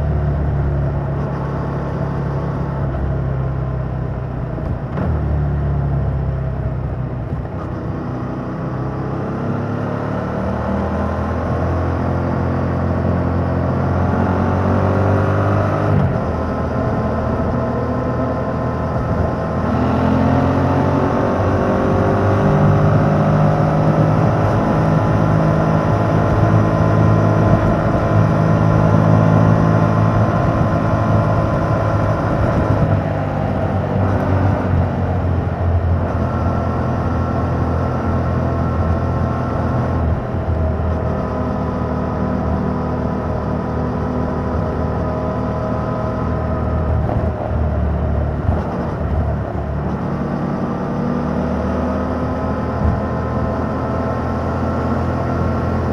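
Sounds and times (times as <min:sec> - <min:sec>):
motorcycle engine running: 0:11.2 - 0:55.9
low wind rumble: 0:14.0 - 0:54.6.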